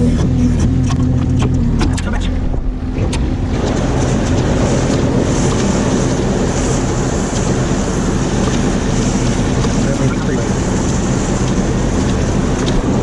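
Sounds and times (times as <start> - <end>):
vehicle engine running: 0.0 - 13.0
wind noise on microphone: 0.0 - 13.0
sharp clicks: 2.8 - 13.0.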